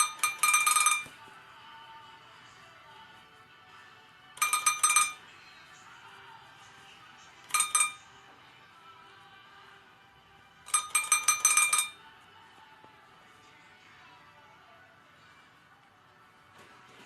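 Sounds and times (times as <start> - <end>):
small bell ringing: 0.0 - 1.2, 4.4 - 5.3, 7.4 - 8.1, 10.7 - 12.1.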